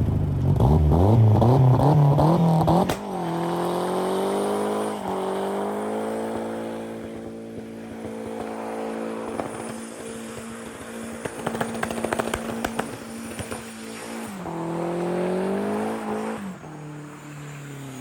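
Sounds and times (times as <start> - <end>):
car engine revving high: 0.5 - 7.4, 11.4 - 17.3
sharp exhaust cracks: 9.3 - 13.8.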